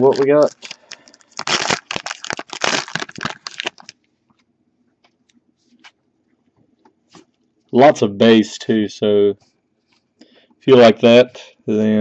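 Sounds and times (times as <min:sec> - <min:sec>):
packaging ripping and crinkling: 0:00.0 - 0:04.0.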